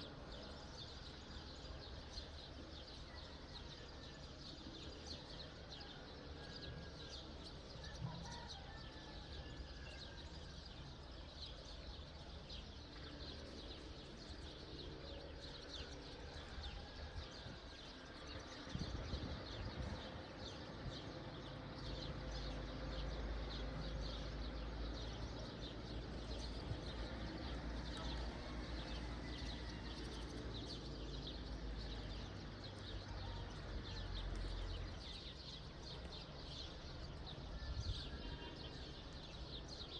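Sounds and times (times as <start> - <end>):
small birds chirping: 22.3 - 39.9.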